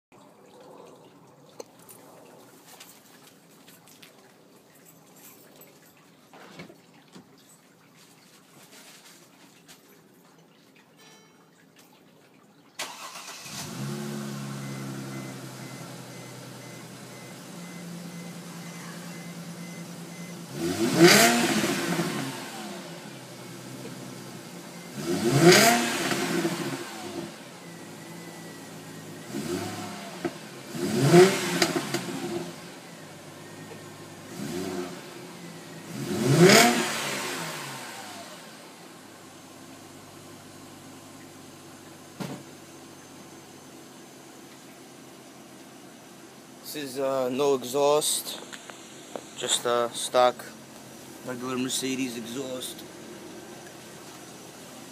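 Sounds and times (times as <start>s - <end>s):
engine revving: 12.8s - 38.8s
car engine starting and idling: 12.8s - 54.9s.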